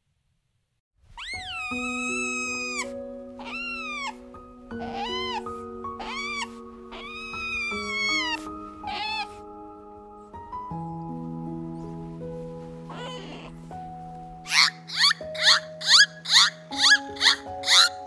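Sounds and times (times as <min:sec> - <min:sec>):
soft background music: 0:01.1 - 0:18.0
otters squealing: 0:01.2 - 0:09.6, 0:12.9 - 0:13.6, 0:14.5 - 0:18.0.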